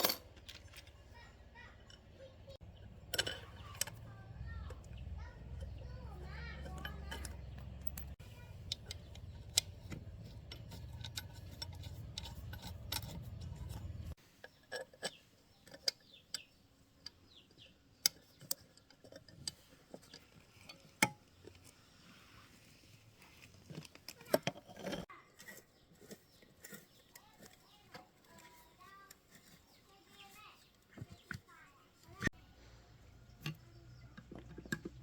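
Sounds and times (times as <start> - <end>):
metal parts and tools clinking: 0.0 - 17.2, 23.4 - 29.8.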